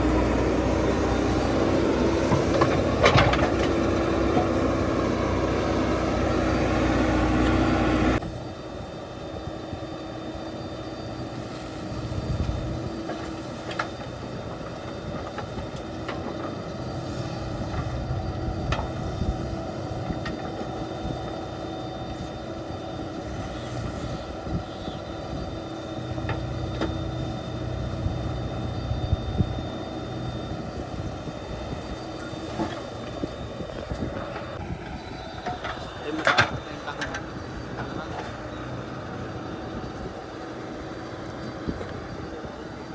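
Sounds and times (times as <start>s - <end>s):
diesel engine running: 0.0s - 42.9s
machine clanks and knocks: 35.4s - 38.1s.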